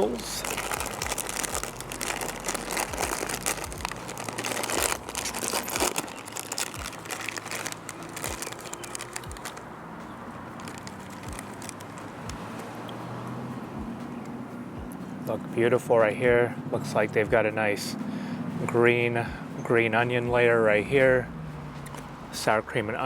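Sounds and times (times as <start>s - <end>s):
plastic snack bag crinkling: 0.0s - 9.6s, 10.6s - 12.2s.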